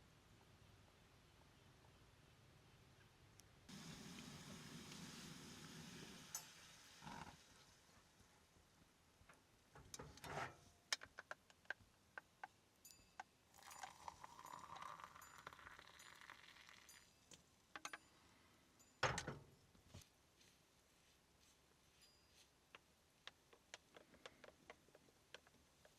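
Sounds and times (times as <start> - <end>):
small sharp clicks and rattles: 10.9 - 18.1
rustling: 19.7 - 22.9.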